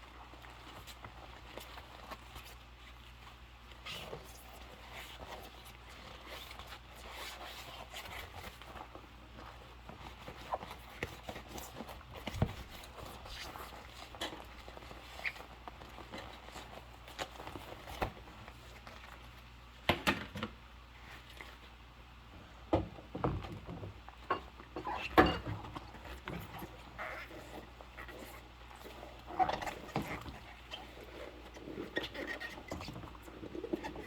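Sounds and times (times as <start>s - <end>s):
rubber glove squeaks: 10.2s - 19.3s, 25.8s - 34.0s
dishes clinking and knocking: 22.8s - 25.7s.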